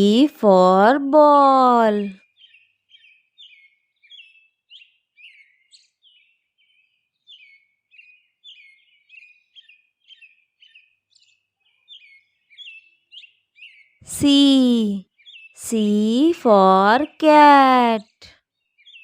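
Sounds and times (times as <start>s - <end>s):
faint bird chirps: 2.2s - 17.0s.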